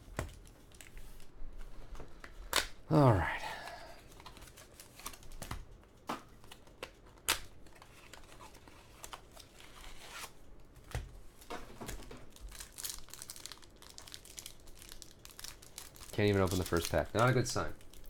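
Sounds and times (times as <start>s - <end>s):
wrapper crinkling and tearing: 12.3s - 18.0s.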